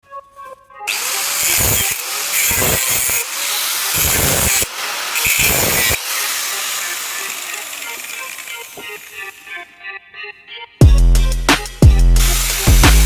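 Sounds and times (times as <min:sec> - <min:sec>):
power tool cutting steel: 0:00.9 - 0:09.7, 0:12.2 - 0:13.0.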